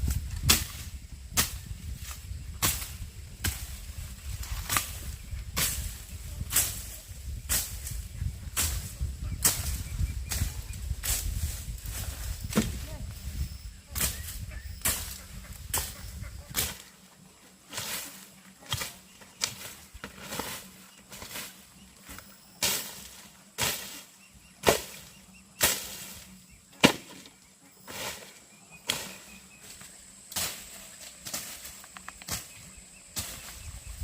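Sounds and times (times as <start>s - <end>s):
sharp chopping strikes: 0.1s - 1.6s, 12.5s - 12.8s, 24.6s - 26.2s, 26.8s - 27.3s, 27.9s - 29.3s.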